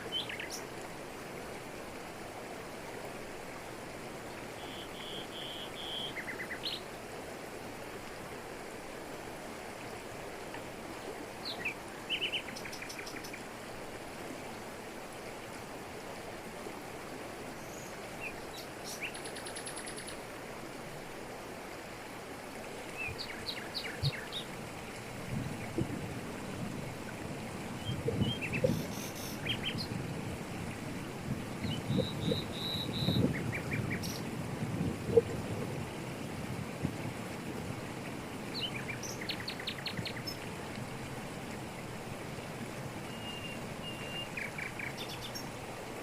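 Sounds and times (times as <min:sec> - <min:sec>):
waterfall rushing over rocks: 0:00.0 - 0:46.0
birds chirping and trilling: 0:31.6 - 0:34.2.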